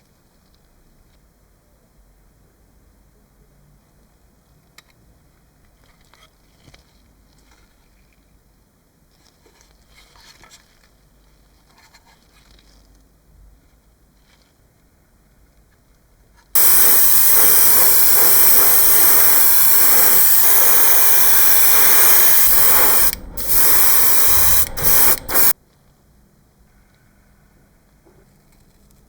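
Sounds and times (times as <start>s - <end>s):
paint spray hissing: 16.6s - 25.6s.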